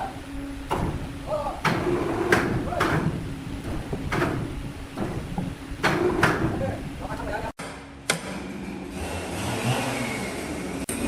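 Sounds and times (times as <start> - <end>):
low machine hum: 0.0 - 8.8
timber knocking and clattering: 0.7 - 6.7.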